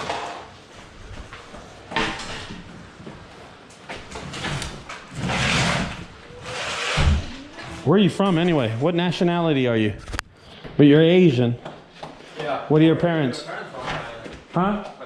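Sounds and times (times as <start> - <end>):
objects scraping and rustling: 4.0 - 8.9.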